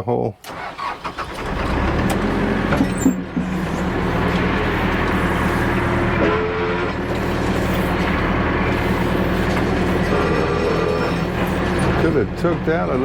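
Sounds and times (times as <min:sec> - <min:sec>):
backhoe engine running: 0:00.5 - 0:13.0.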